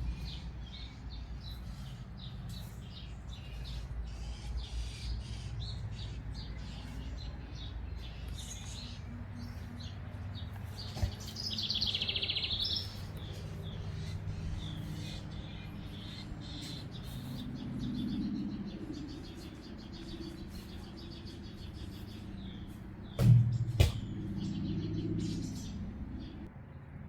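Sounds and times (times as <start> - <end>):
low background rumble: 0.0 - 10.4, 12.6 - 26.5
birds chirping and singing: 0.0 - 26.5
loud bird trilling song: 10.8 - 26.5.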